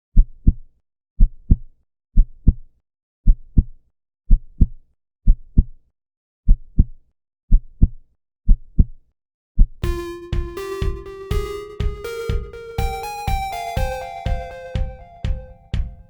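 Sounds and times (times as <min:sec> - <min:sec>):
heartbeat thumps: 0:09.8 - 0:16.0.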